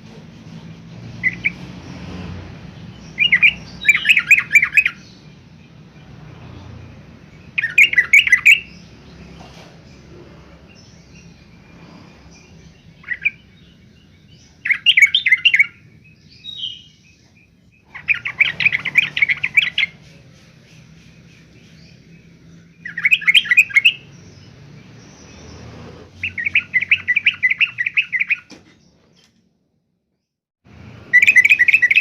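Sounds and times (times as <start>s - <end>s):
bird chattering calls: 3.0s - 5.2s, 7.5s - 8.9s, 17.8s - 24.1s, 25.2s - 28.5s, 31.1s - 32.0s.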